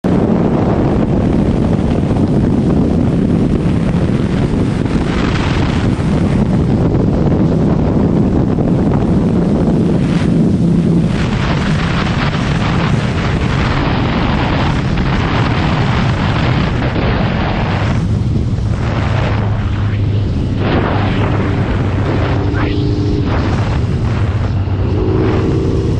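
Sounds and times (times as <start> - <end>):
wind rushing over microphone: 0.0 - 25.9
motorcycle engine running: 17.6 - 25.9.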